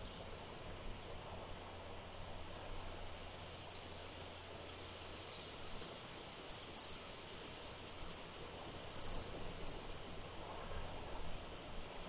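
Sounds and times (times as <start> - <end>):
faint steady hiss: 0.0 - 12.0
small birds chirping: 3.1 - 9.9.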